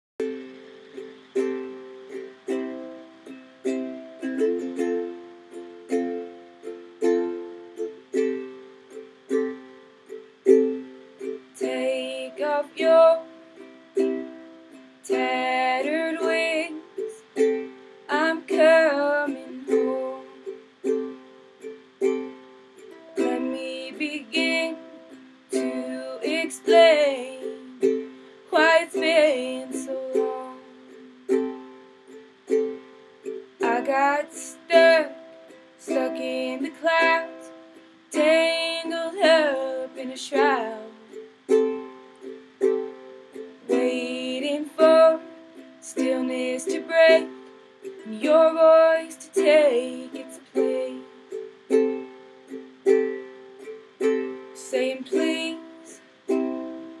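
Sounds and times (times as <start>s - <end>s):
fingerpicked string instrument: 0.2s - 57.0s.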